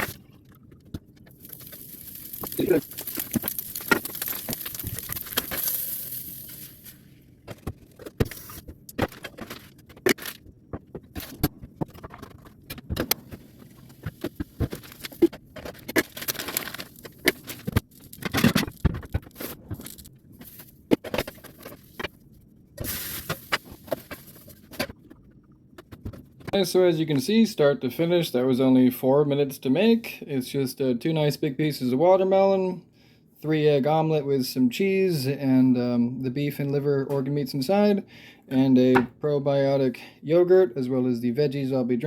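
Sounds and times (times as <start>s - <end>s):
cooking hiss: 1.3s - 7.1s, 22.8s - 24.4s.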